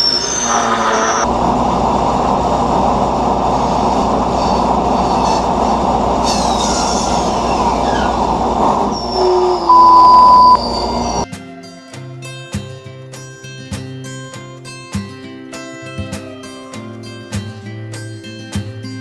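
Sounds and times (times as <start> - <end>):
steady high tone: 3.5 - 11.3
acoustic guitar music: 10.5 - 19.0.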